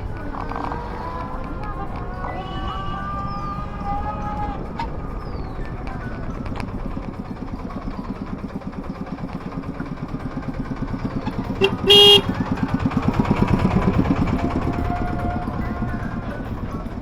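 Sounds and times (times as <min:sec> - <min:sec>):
small engine pulsing: 0:00.0 - 0:17.0
horn honk: 0:11.2 - 0:12.9.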